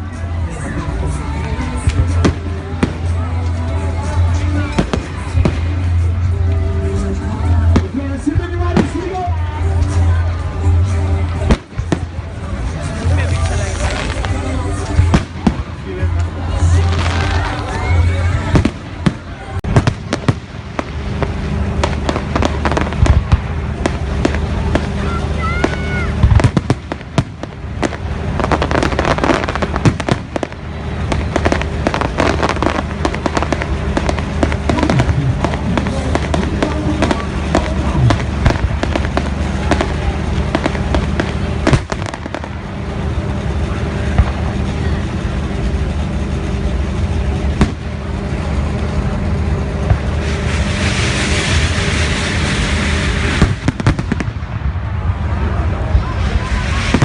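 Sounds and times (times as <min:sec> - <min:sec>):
fireworks crackling and banging: 0:00.0 - 0:57.0
low hum: 0:00.0 - 0:57.0
fireworks hissing burst: 0:49.6 - 0:54.6, 0:55.9 - 0:57.0.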